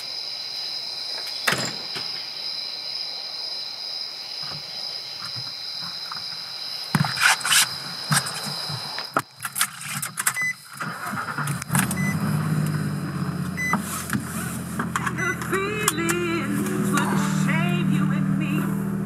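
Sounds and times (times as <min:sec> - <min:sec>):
car door and key clicks: 0:09.2 - 0:10.7
car engine starting and idling: 0:09.5 - 0:19.0.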